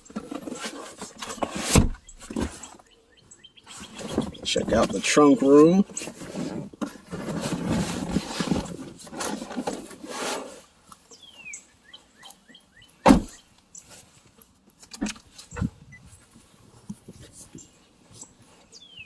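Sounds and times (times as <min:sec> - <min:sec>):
rustling and handling noise: 0:00.0 - 0:03.0, 0:03.7 - 0:19.0
sharp clunk: 0:13.0 - 0:13.4.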